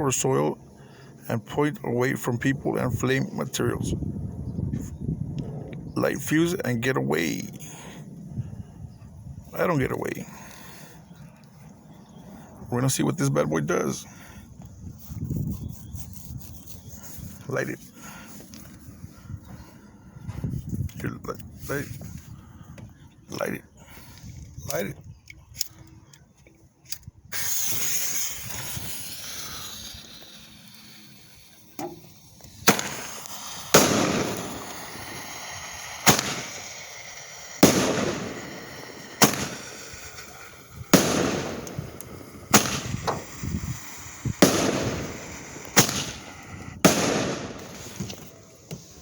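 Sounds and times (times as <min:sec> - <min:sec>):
firework crackling: 0:27.3 - 0:49.0
fuse hissing: 0:27.3 - 0:49.0
firework bangs: 0:27.4 - 0:49.0.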